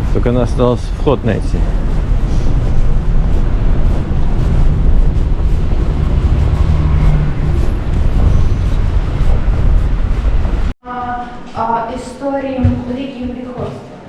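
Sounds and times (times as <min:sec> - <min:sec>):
blizzard wind buffeting microphone: 0:00.0 - 0:10.8.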